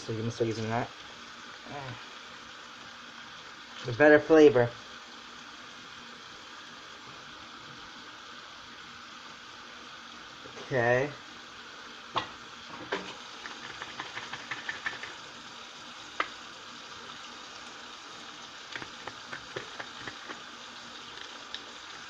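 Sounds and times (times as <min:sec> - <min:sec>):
faint steady hiss: 0:00.0 - 0:22.0
small ticks: 0:13.4 - 0:15.2, 0:18.7 - 0:20.5
wet clicks and taps: 0:13.4 - 0:15.2, 0:18.7 - 0:20.4.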